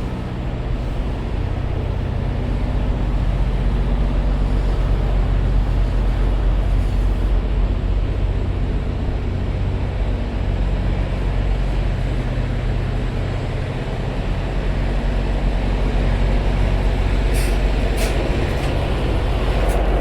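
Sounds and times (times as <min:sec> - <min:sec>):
diesel truck engine humming: 0:00.0 - 0:20.0
short air hiss: 0:17.3 - 0:18.9.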